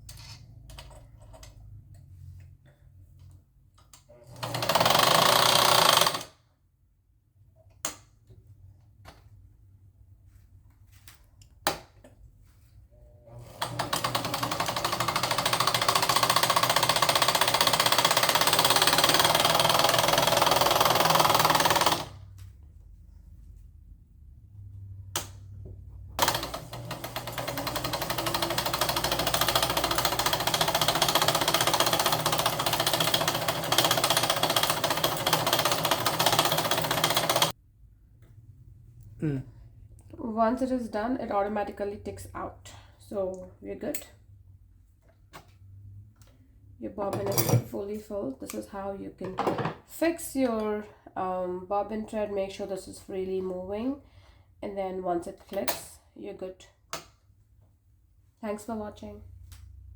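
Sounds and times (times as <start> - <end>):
sewing machine rattling: 4.2 - 6.4, 13.3 - 22.2, 26.2 - 37.6.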